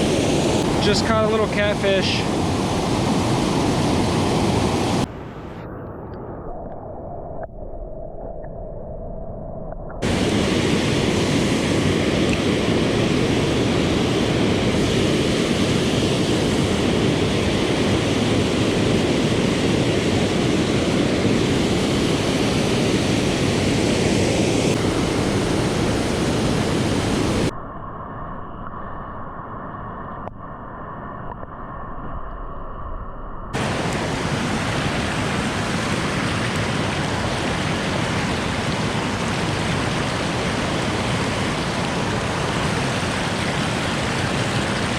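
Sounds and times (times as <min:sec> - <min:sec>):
river water rushing: 0:00.0 - 0:05.1, 0:10.0 - 0:27.5, 0:33.6 - 0:44.9.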